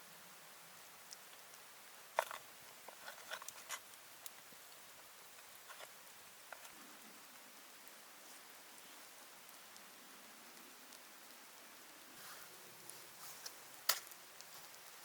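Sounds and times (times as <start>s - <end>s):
faint steady hiss: 0.0s - 15.0s
small clicks and taps: 2.2s - 6.8s.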